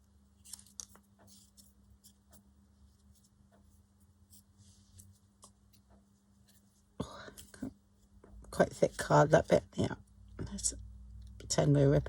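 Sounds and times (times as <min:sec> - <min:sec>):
faint steady hum: 0:00.0 - 0:12.0
paper rustling and clicks: 0:00.4 - 0:01.7.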